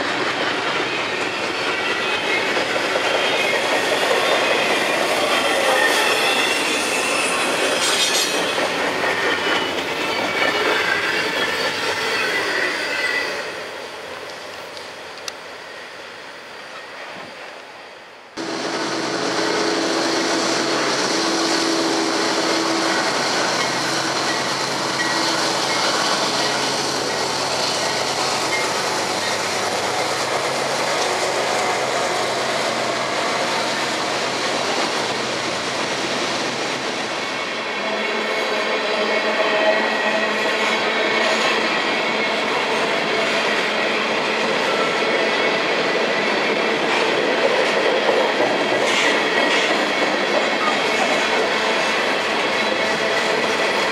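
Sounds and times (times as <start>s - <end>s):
clicks of train wheels: 0.0s - 13.5s, 14.2s - 15.5s, 22.9s - 35.9s, 39.8s - 53.9s
freight train rumbling on rails: 0.0s - 53.9s.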